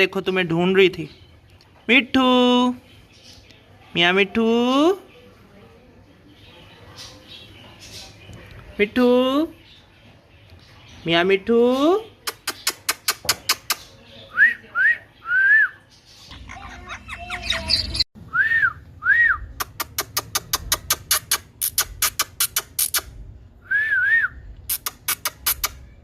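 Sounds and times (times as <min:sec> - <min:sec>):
sharp clicks: 0:12.2 - 0:13.9, 0:19.6 - 0:23.1, 0:24.7 - 0:25.8.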